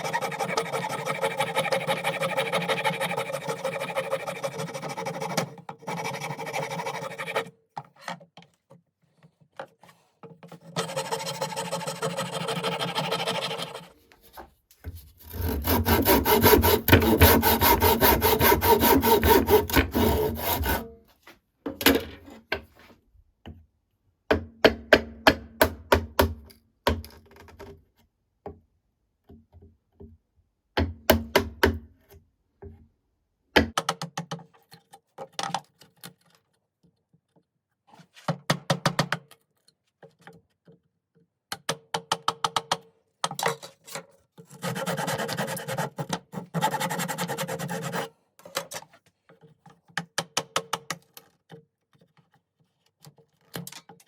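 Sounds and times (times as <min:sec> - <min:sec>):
hand tool working wood: 0:00.0 - 0:07.5, 0:09.8 - 0:21.0.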